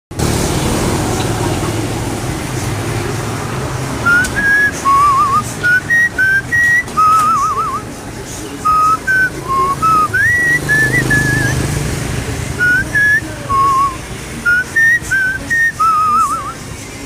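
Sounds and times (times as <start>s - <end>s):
whistled notes: 4.0s - 7.9s, 8.6s - 11.7s, 12.6s - 16.6s.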